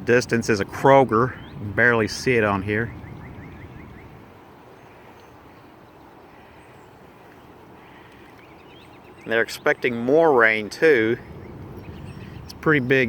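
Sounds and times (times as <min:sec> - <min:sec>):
bird chirping: 0:01.3 - 0:01.8, 0:02.7 - 0:10.1, 0:11.2 - 0:13.0
creek water rushing: 0:03.7 - 0:13.0.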